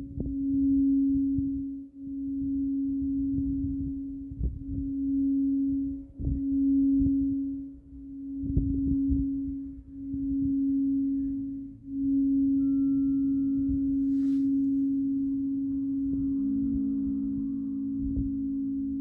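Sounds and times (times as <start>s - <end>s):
singing bowl tone: 0.0s - 19.0s
scratchy rustle: 14.0s - 15.3s.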